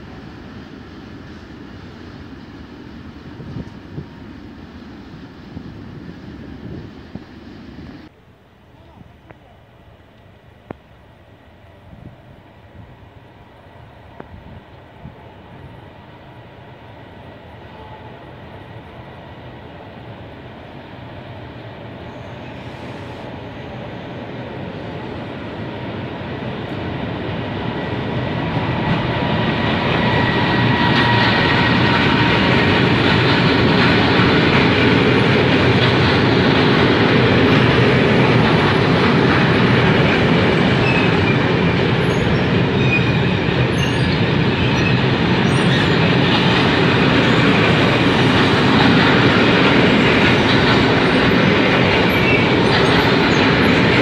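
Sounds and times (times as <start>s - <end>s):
freight train passing: 0.0s - 54.0s.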